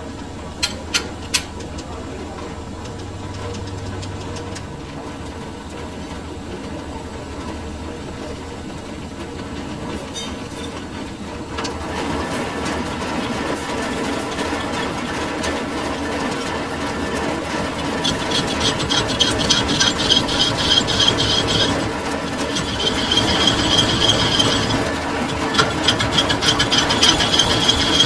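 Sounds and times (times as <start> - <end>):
lathe motor humming: 10.7 - 28.0.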